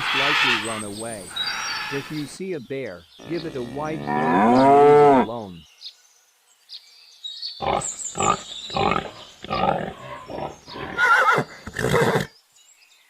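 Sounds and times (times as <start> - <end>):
pig grunting: 3.2 - 5.5, 7.6 - 12.2.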